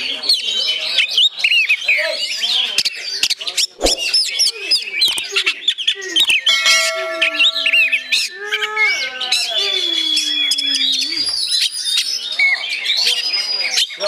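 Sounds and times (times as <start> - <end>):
bird singing whistles and chirps: 4.9 - 14.0.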